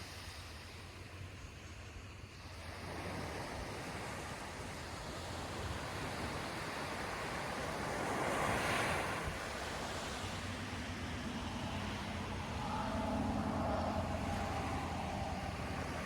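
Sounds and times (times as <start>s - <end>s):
low wind rumble on microphone: 0.6s - 16.0s
ocean surf breaking: 6.6s - 16.0s.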